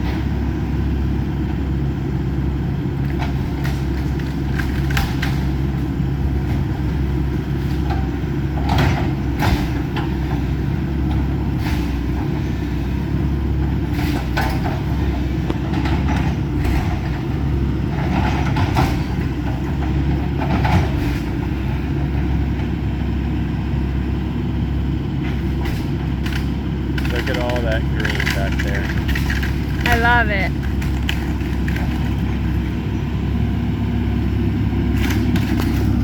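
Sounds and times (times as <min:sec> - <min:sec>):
excavator diesel engine running: 0:00.0 - 0:36.0
crunches and clanks of demolition: 0:03.1 - 0:05.8, 0:25.2 - 0:32.9.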